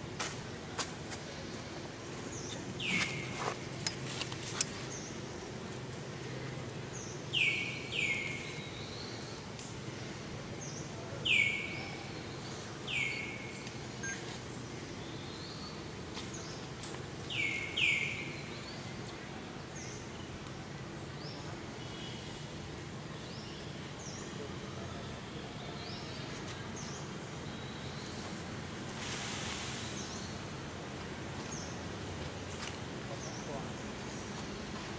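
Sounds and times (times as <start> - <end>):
low outdoor hum: 0.0 - 34.9
faint high chirps: 13.6 - 14.4.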